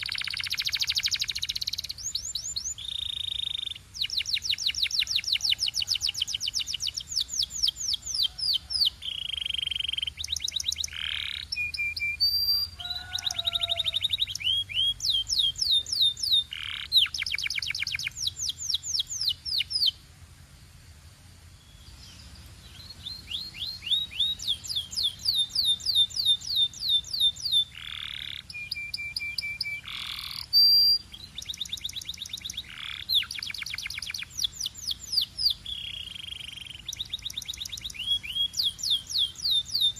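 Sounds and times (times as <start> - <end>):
canary singing trills: 0.0 - 20.0, 21.6 - 39.9.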